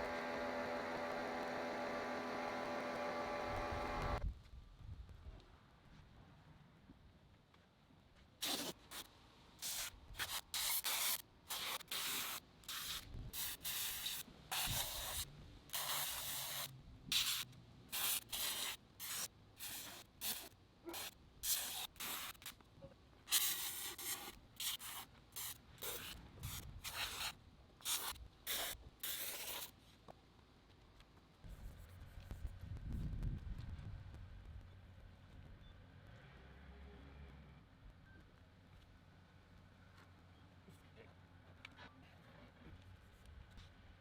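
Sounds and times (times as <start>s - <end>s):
spray bottle spritzing: 8.4s - 22.5s, 23.3s - 29.7s.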